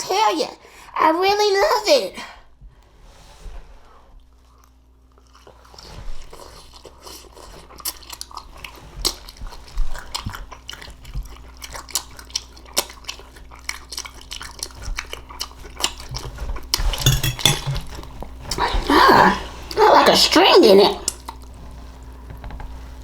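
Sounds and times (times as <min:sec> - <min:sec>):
close-up chewing: 0:04.4 - 0:16.9.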